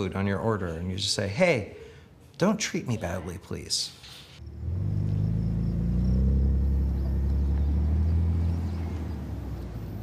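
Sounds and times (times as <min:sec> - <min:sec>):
car engine droning: 0:04.4 - 0:10.0.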